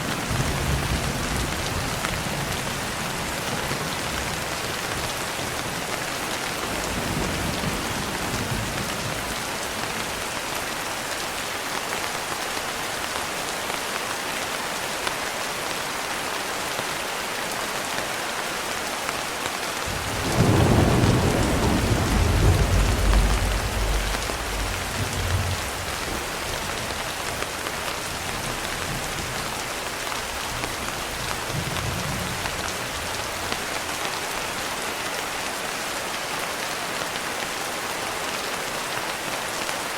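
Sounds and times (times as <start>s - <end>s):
steady rain: 0.0s - 39.9s
thunder clap and rumble: 6.6s - 10.2s, 19.9s - 29.5s
faint low thunder rumbles: 19.9s - 27.3s.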